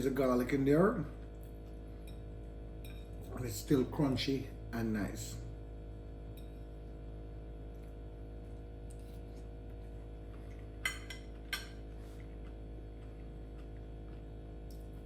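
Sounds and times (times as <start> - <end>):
cutlery clinking on plate: 10.8 - 11.8.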